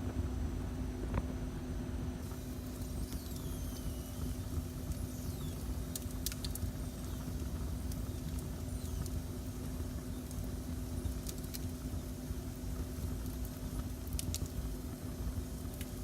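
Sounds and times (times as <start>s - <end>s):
fire crackling pops: 2.4s - 16.0s
faint high whistles: 2.5s - 5.8s.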